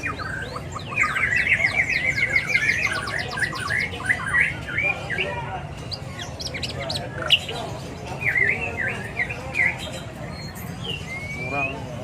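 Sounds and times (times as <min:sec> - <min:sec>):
background birds chirping: 0:00.0 - 0:12.0
songbirds singing: 0:00.0 - 0:12.0.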